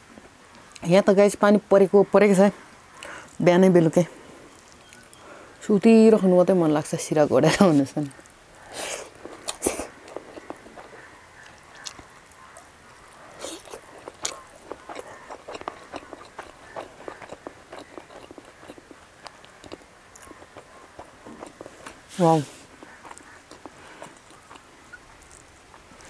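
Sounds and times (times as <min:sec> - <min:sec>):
person chewing food: 0:04.4 - 0:05.2, 0:08.0 - 0:26.0
lip smacks: 0:08.0 - 0:26.0.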